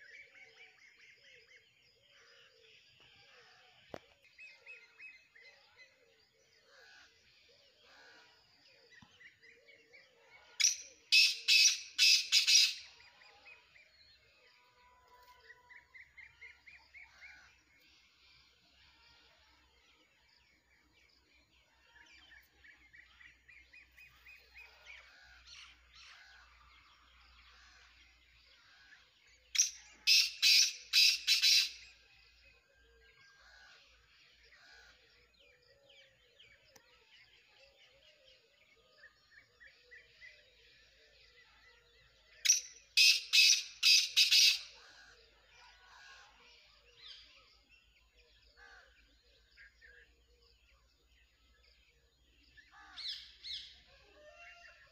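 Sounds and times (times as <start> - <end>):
soft bird chirps and trills: 0.0 - 54.9
harsh bird call phrases: 42.5 - 44.8.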